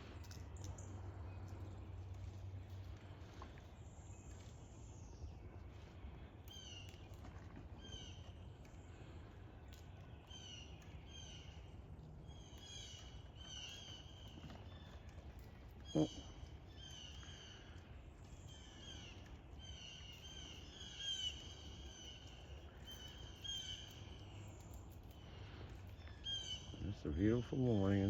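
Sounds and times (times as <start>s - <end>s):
faint low outdoor rumble: 0.0s - 28.0s
bird calling: 12.3s - 28.0s.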